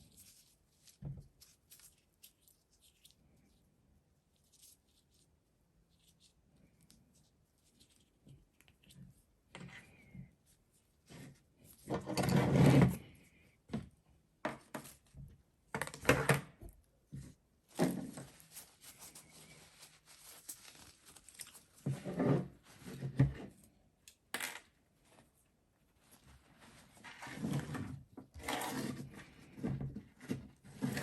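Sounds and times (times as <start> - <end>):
parts and tools being handled: 14.4 - 25.3.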